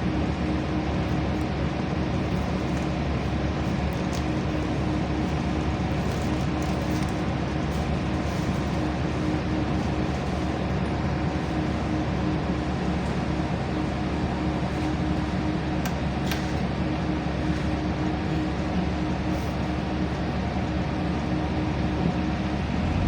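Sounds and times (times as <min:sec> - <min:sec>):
bus engine drone: 0:00.0 - 0:23.0
road noise: 0:22.4 - 0:23.0.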